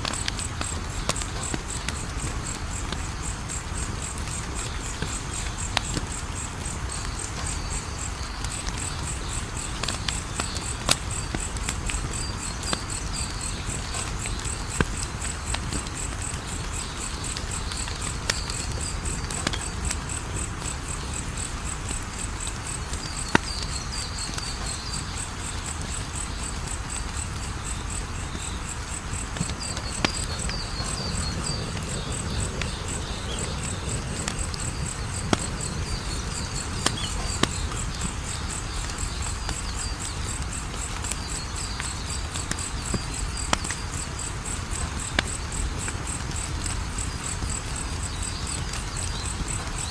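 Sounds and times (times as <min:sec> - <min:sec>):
crickets chirping: 0:00.0 - 0:49.9
wood fire crackling: 0:00.0 - 0:49.9
lower chirps: 0:29.3 - 0:38.6.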